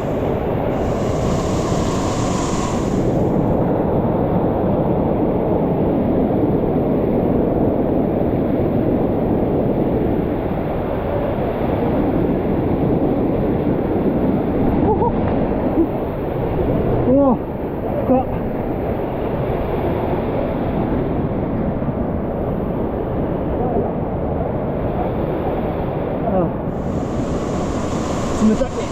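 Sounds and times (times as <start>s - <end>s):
bright hiss: 0.0s - 3.9s, 26.7s - 28.9s.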